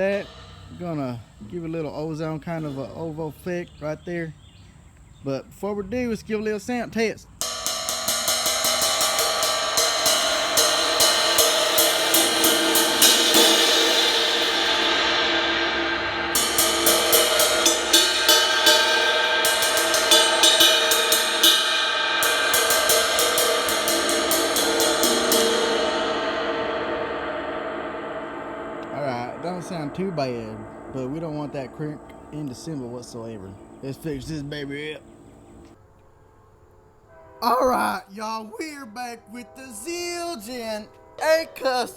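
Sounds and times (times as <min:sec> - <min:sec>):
cracked ride cymbal strikes: 0:00.0 - 0:04.1, 0:07.3 - 0:35.8.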